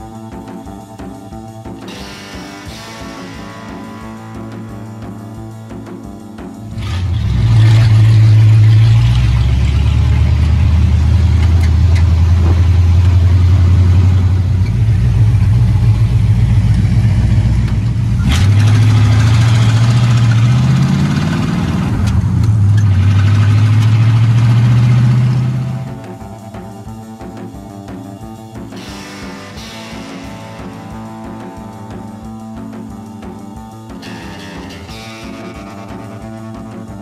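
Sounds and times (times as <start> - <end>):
car engine running: 4.3 - 27.7.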